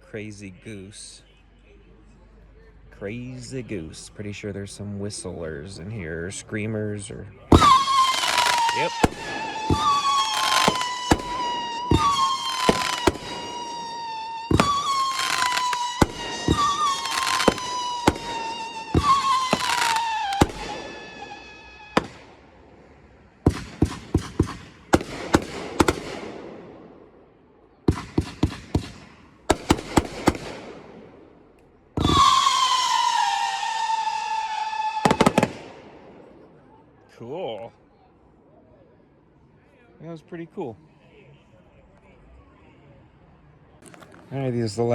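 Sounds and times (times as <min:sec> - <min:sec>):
firework whistles: 0:07.5 - 0:26.3, 0:32.0 - 0:36.0
firework bangs: 0:07.5 - 0:36.6, 0:43.8 - 0:44.9.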